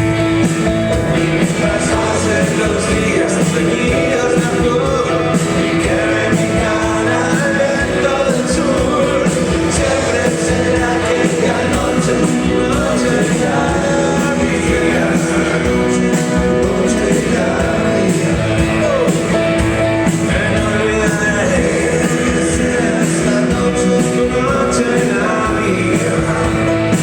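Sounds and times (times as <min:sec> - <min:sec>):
live rock band playing: 0:00.0 - 0:27.0
steady drum beat: 0:00.0 - 0:27.0
lead singer singing: 0:00.4 - 0:27.0.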